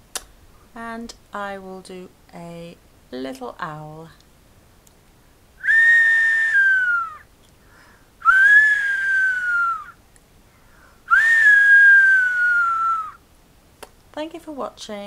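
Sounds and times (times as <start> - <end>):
whistled owl call imitation: 5.6 - 7.3, 8.2 - 10.0, 11.1 - 13.2.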